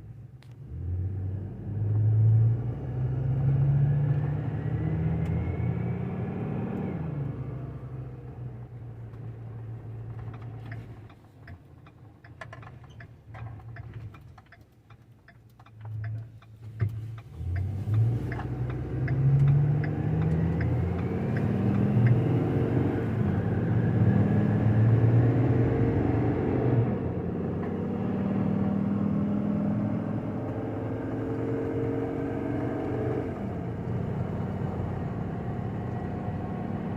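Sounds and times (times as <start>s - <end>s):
sharp clicks ticking: 10.2s - 22.3s.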